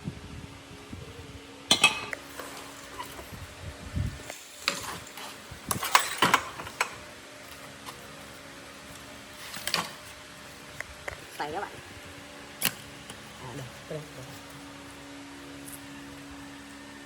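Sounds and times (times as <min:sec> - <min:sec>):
metal clinking and knocking: 0:01.7 - 0:02.2.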